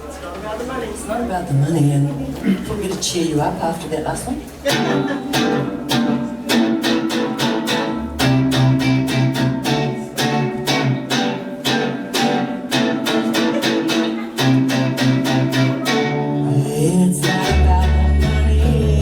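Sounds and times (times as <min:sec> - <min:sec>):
guitar strumming: 0:04.7 - 0:19.0
low bass notes: 0:14.8 - 0:19.0.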